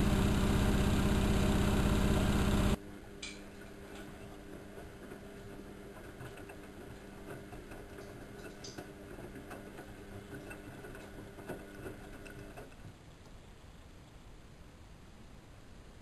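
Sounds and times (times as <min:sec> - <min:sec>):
washing machine motor hum: 0:00.0 - 0:12.8.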